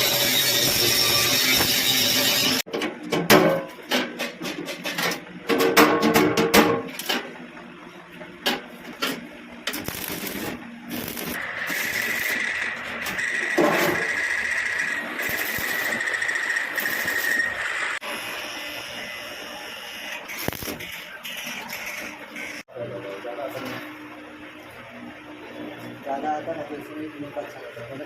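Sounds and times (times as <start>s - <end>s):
power tool whining: 9.8s - 18.0s.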